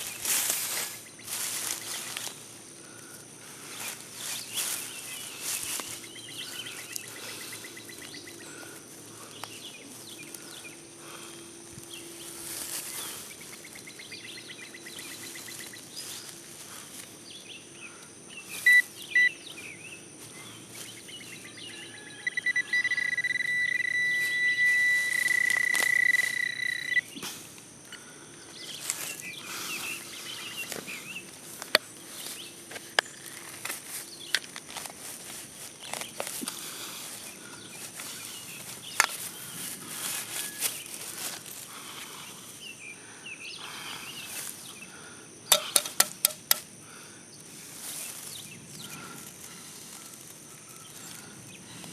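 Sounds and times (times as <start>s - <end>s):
insects droning: 0.0s - 51.9s
metal detector beeping: 18.5s - 19.4s, 21.8s - 27.2s, 40.2s - 41.0s, 45.5s - 46.6s
sharp clicks: 45.5s - 46.7s.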